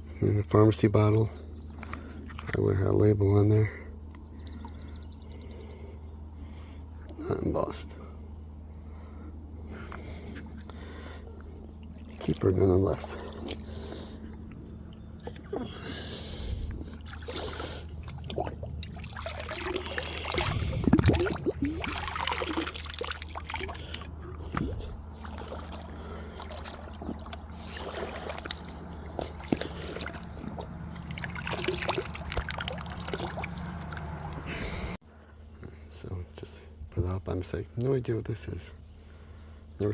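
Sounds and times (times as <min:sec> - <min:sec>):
creek water trickling: 0:00.2 - 0:03.2, 0:09.6 - 0:35.0
splashes from wading: 0:11.8 - 0:34.9.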